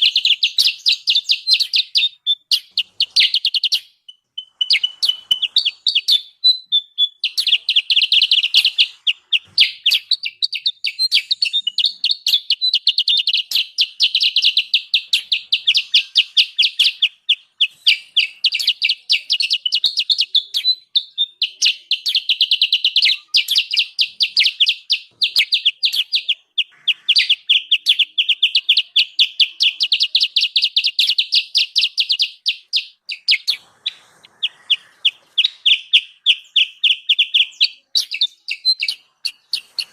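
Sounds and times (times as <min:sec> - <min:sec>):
songbird rapid high chirps: 0:00.0 - 0:39.9.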